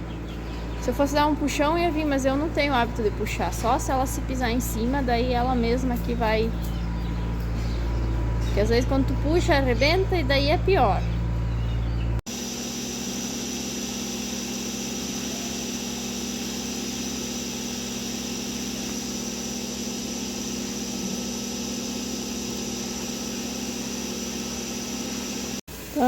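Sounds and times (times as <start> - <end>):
small motor humming: 6.0 - 25.6.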